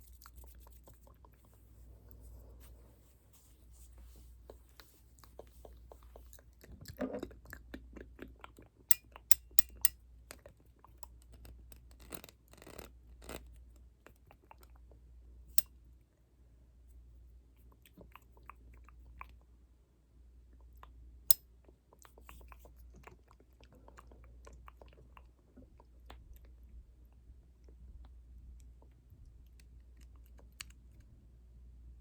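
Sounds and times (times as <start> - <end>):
soft scratching and brushing: 0.0 - 6.4.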